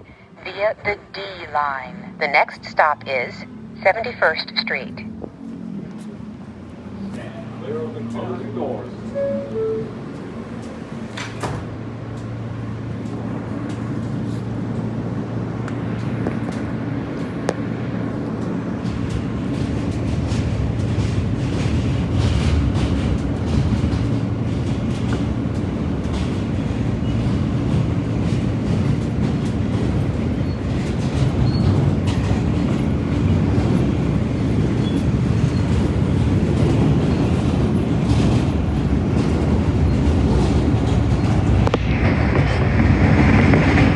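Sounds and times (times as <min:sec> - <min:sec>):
subway train running on rails: 0:00.0 - 0:43.9
clicks and clacks from track: 0:15.6 - 0:43.9.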